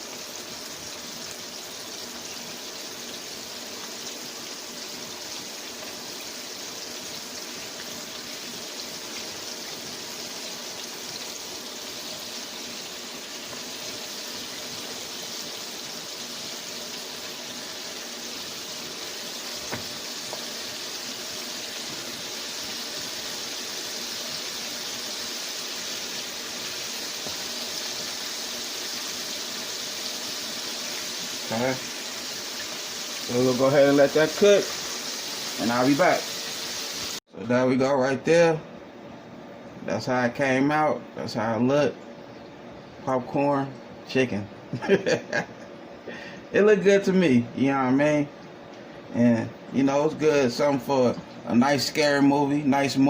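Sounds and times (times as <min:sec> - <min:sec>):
chicken frying in oil: 0:00.0 - 0:37.2.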